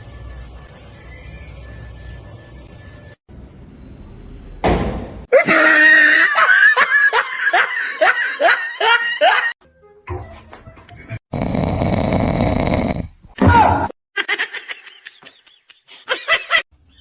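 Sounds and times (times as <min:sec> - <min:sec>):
laughter: 0:05.4 - 0:09.6, 0:14.2 - 0:16.7.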